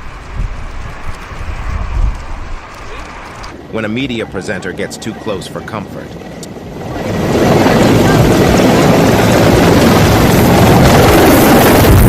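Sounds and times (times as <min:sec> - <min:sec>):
aircraft roar: 0:00.0 - 0:12.0.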